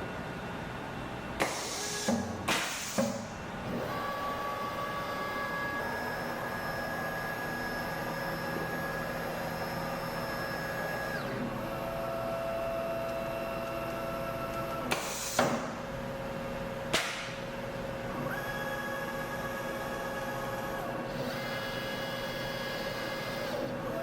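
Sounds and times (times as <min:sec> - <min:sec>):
router motor whine: 0:03.6 - 0:14.9, 0:18.0 - 0:24.0.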